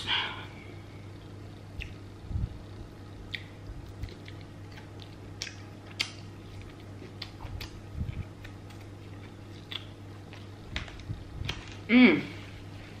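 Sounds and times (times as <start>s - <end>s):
low hum: 0.0s - 13.0s
chewing mouth clicks and smacks: 1.8s - 2.0s, 3.3s - 11.6s.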